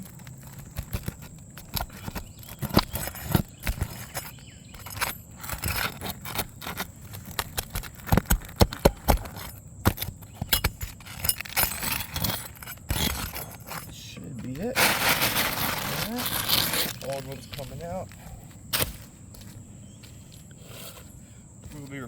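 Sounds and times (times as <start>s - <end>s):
hatchet prying nails from shingles: 0.5s - 13.9s.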